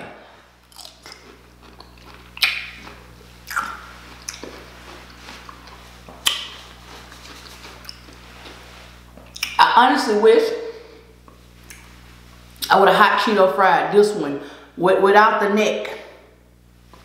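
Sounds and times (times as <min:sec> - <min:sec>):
crisp pickle crunches: 0:00.6 - 0:08.6
wet chewing: 0:00.6 - 0:08.6.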